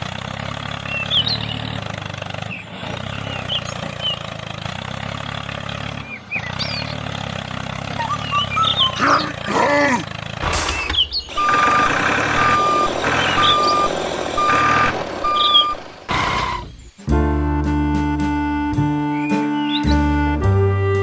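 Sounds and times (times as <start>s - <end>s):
rumbling engine: 0.0s - 21.0s
reversing alarm beeping: 8.0s - 9.1s, 10.4s - 20.0s
music: 17.0s - 21.0s.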